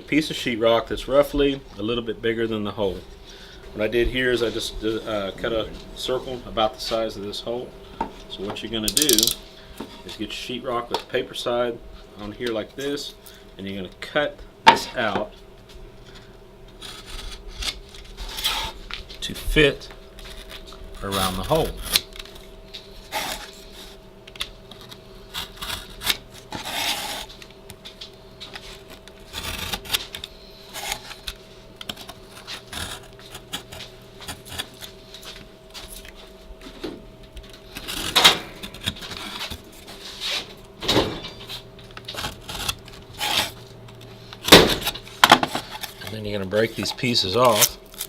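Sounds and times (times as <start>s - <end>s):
faint steady hum: 0.0s - 48.0s
sheetrock being cut by hand: 23.0s - 23.8s, 24.8s - 27.4s, 28.7s - 35.3s, 37.7s - 40.4s, 42.1s - 43.6s, 45.6s - 47.8s.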